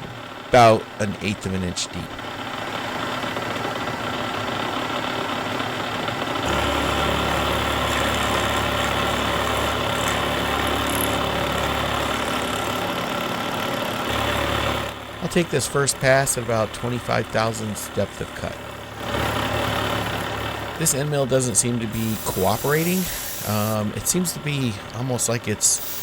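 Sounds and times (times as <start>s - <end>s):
milling machine running: 2.2s - 18.0s, 18.6s - 24.0s, 25.7s - 26.0s
deeper hum: 6.4s - 26.0s.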